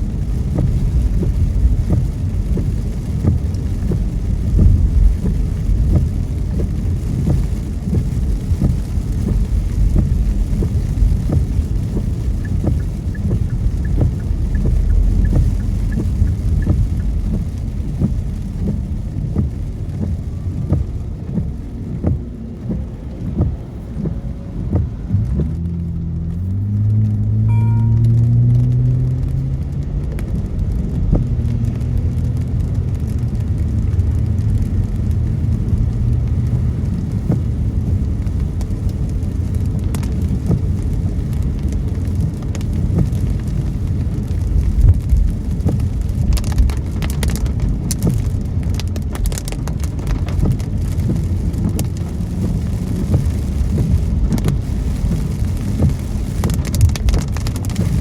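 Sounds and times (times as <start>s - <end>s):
car engine and tyres on wet road: 0.0s - 58.0s
raindrops tapping on windows: 0.0s - 58.0s
low hum: 21.5s - 29.7s.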